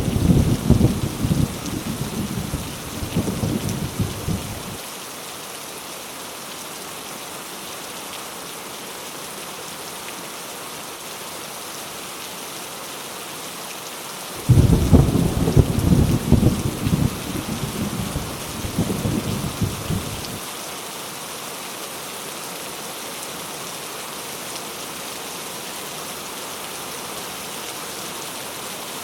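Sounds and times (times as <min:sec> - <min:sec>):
thunder rumbling: 0:00.0 - 0:04.8, 0:14.4 - 0:20.4
heavy rain pouring: 0:00.0 - 0:29.0.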